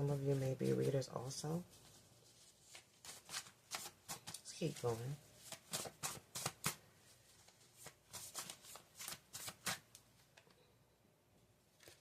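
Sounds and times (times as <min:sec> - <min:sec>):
cards snapping and slapping: 0:05.5 - 0:06.8, 0:07.8 - 0:09.9.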